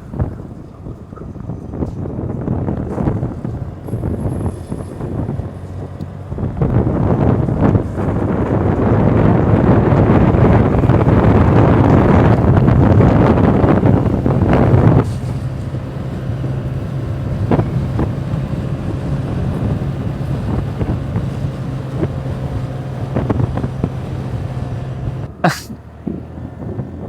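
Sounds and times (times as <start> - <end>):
motorbike engine humming: 0.0 - 27.0
wind buffeting microphone: 0.0 - 27.0.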